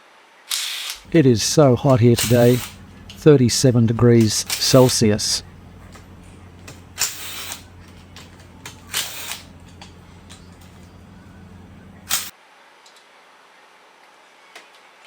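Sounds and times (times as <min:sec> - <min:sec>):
steady low hum: 0:01.0 - 0:12.3
metal tools clicking and scraping: 0:04.2 - 0:12.3.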